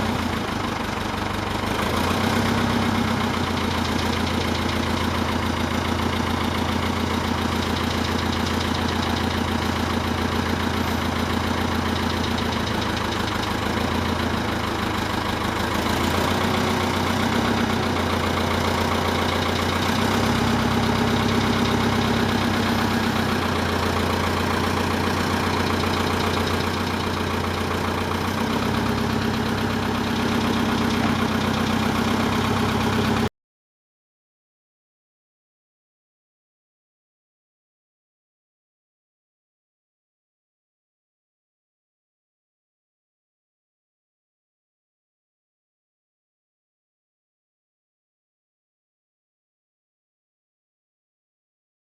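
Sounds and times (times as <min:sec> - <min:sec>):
tractor diesel engine running: 0:00.0 - 0:33.3.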